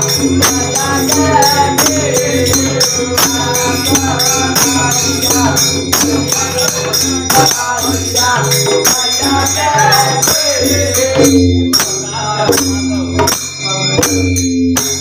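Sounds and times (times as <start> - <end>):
hand drum beat: 0.0 - 13.4
person singing: 0.0 - 14.1
hand cymbals clashing: 0.0 - 15.0.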